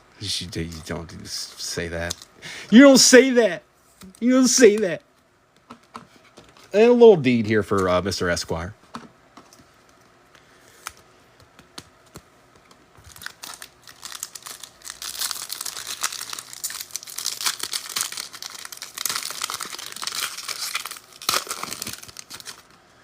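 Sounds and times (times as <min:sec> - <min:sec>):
foil wrapper tearing: 0:13.0 - 0:22.8.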